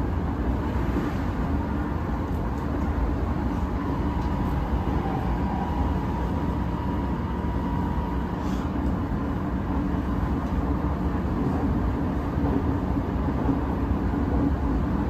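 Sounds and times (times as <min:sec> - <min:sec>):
constant hum: 0:00.0 - 0:15.0
wheels rumbling on rail: 0:00.0 - 0:15.0.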